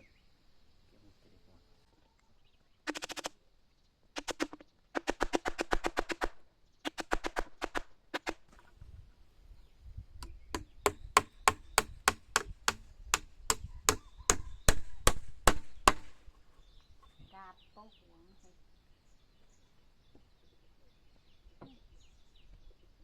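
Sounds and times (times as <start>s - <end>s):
chopping on wood: 10.2s - 16.2s.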